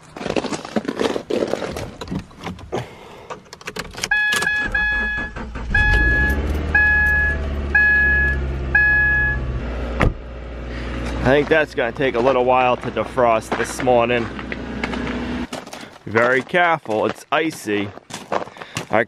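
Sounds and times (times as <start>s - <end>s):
dashboard warning chime: 4.1s - 9.6s
car engine idling: 4.6s - 15.5s.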